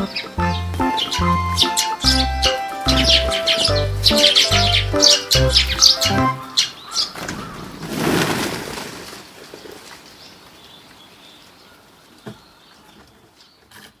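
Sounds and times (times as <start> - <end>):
sparrows' wings flapping: 2.9 - 10.2.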